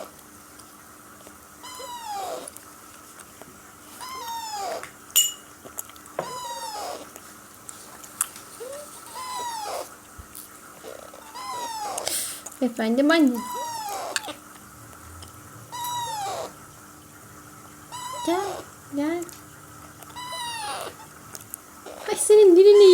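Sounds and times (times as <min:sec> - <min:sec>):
parakeet chick squawking: 0:01.6 - 0:02.5, 0:04.0 - 0:04.8, 0:06.2 - 0:07.1, 0:08.6 - 0:10.0, 0:10.8 - 0:12.3, 0:13.2 - 0:14.4, 0:15.7 - 0:16.6, 0:17.9 - 0:18.8, 0:20.1 - 0:21.2, 0:21.9 - 0:22.9.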